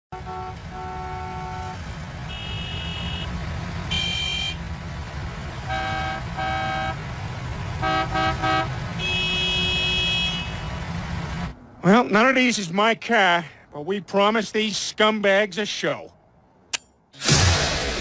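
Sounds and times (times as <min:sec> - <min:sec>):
car horns honking: 0:00.1 - 0:04.7, 0:05.5 - 0:11.0.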